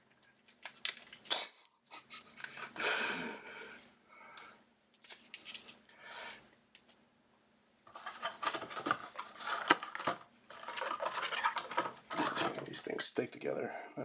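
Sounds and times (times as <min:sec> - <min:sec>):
cards and plastic holders handled: 0:07.9 - 0:12.8.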